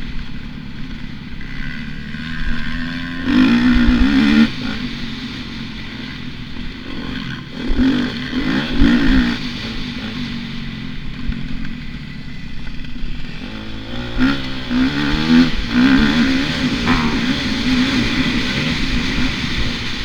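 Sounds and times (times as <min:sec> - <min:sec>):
dirt bike engine revving: 0:12.7 - 0:20.0.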